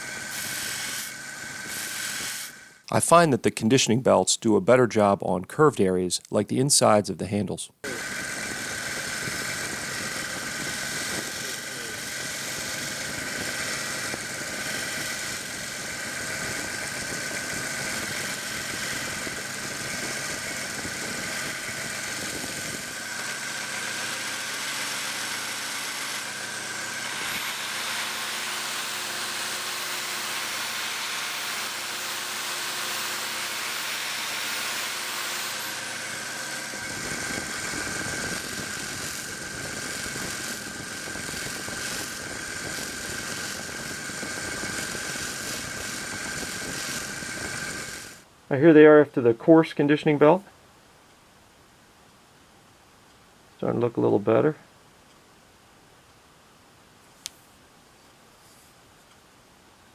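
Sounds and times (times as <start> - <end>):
belt sander running: 0.0 - 2.9, 7.8 - 48.2.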